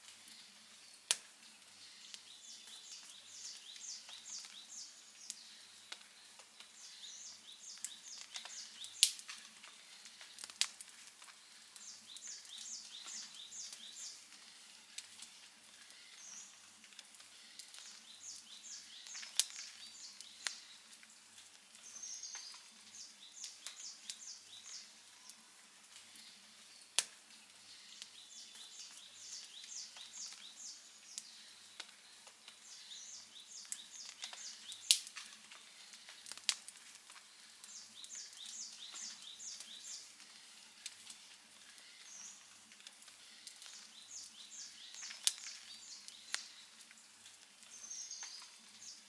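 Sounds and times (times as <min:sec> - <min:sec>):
campfire crackling and popping: 0:00.0 - 0:25.1, 0:25.8 - 0:49.0.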